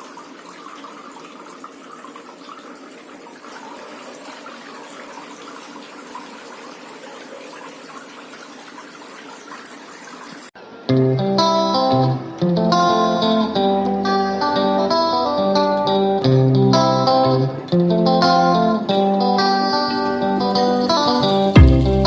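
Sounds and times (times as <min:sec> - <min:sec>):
tabletop fountain water splashing: 0:00.0 - 0:10.6.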